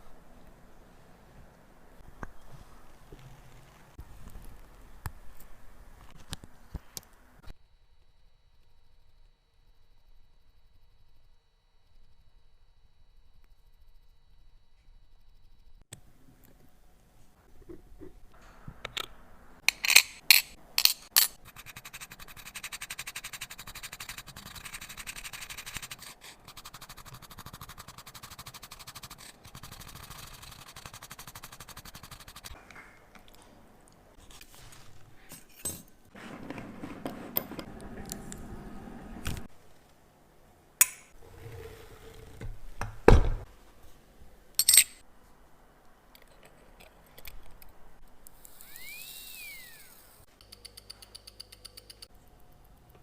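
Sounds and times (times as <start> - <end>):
small metal tools clinking: 44.6 - 45.0.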